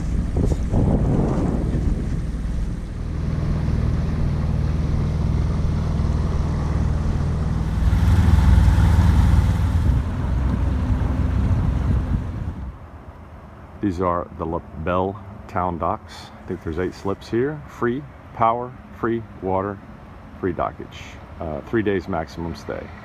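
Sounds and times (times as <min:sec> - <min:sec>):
wind buffeting microphone: 0:07.5 - 0:12.9
boat engine humming: 0:07.5 - 0:13.0.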